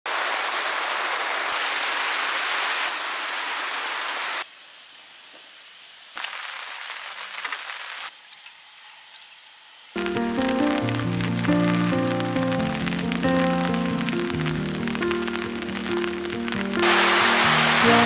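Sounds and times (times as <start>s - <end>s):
rain-like hiss: 0.1s - 18.0s.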